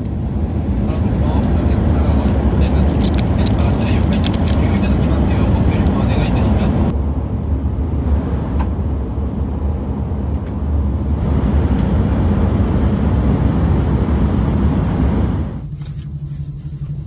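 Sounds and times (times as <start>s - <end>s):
train running heard from inside: 0.0s - 17.0s.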